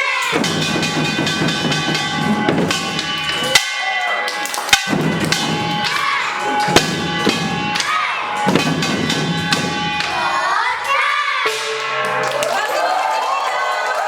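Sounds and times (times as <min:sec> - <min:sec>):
drum strikes: 0:00.0 - 0:12.7
crowd voices: 0:00.0 - 0:14.0
metallic gong ringing: 0:04.8 - 0:12.4.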